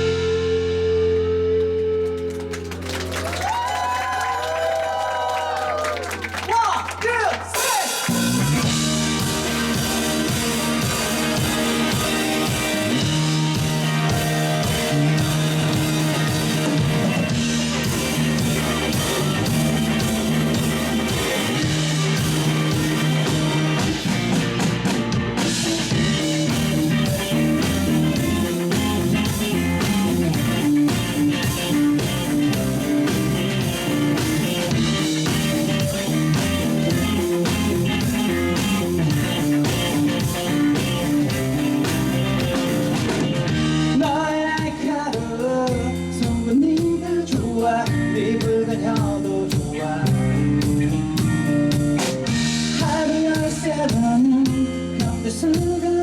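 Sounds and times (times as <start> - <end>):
live rock band playing: 0.0 - 56.0
person singing: 43.9 - 50.4.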